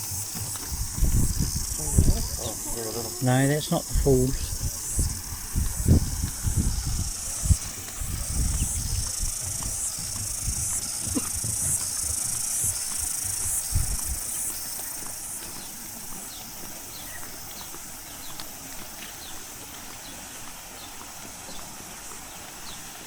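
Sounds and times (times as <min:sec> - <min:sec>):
low thumps: 0:00.0 - 0:14.3
cicadas buzzing chorus: 0:00.0 - 0:23.0.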